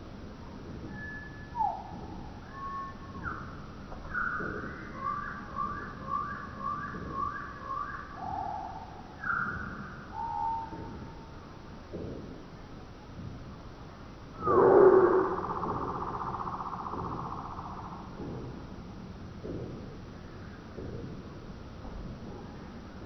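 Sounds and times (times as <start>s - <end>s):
songbird singing whistled phrases: 0.9s - 10.8s
low background rumble: 8.1s - 23.0s.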